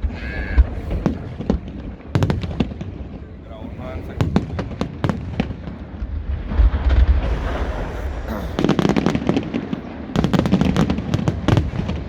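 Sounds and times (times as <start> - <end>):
rapid crackling bangs: 0.0 - 12.0
firework boom: 4.2 - 12.0.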